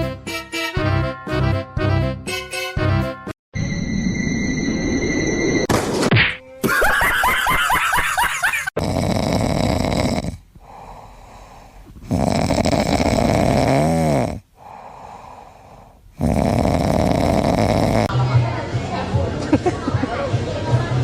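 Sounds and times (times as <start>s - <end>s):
pet snoring: 8.8s - 18.1s.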